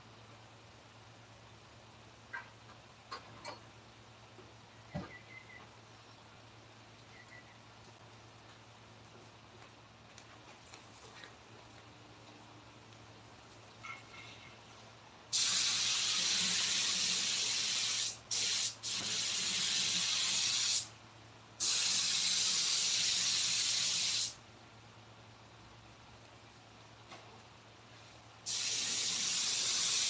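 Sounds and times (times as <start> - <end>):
compressed air hissing from nozzle: 15.3 - 20.9, 21.6 - 24.4, 28.4 - 30.0.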